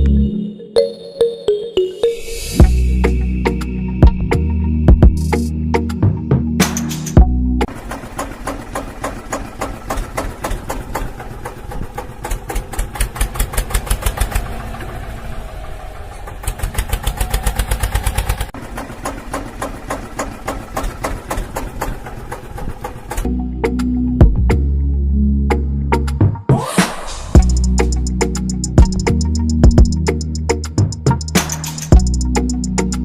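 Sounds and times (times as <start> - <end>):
diesel engine running: 7.2 - 23.6, 27.4 - 33.0.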